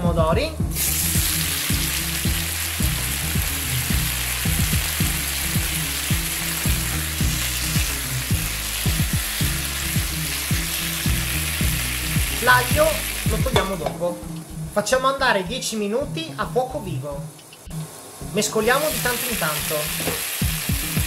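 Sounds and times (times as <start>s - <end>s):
tomatoes sizzling in oil: 0.7s - 13.9s, 17.7s - 21.0s.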